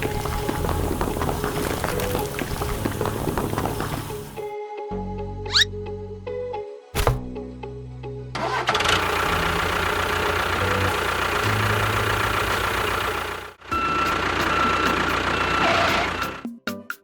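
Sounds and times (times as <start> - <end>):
heavy vehicle engine rumbling: 0.0 - 4.4, 8.4 - 16.4.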